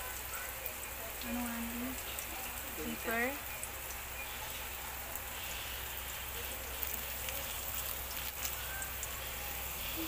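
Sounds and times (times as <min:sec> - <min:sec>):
vegetables sizzling in hot oil: 0:00.0 - 0:10.0
small crackles: 0:03.4 - 0:10.0.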